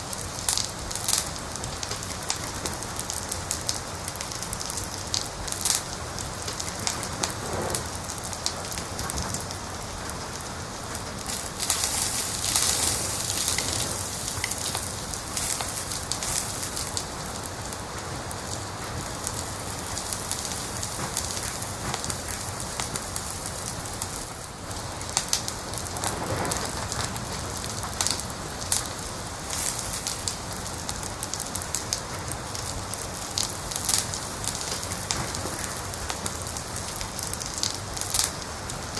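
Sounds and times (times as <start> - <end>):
fireplace fire crackling: 0.0 - 38.9
sharp popping of fire: 0.0 - 38.9.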